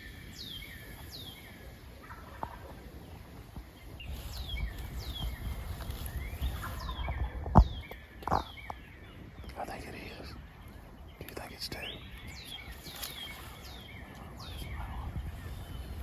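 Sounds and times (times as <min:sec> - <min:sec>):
songbirds whistling: 0:00.0 - 0:16.0
wind rumbling on microphone: 0:00.0 - 0:16.0
distant turkey gobbling: 0:01.8 - 0:03.1.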